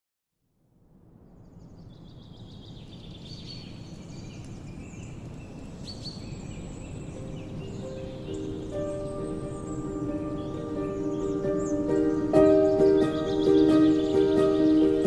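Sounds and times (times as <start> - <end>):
birds chirping and trilling: 1.3 - 15.0
soft music: 6.9 - 15.0.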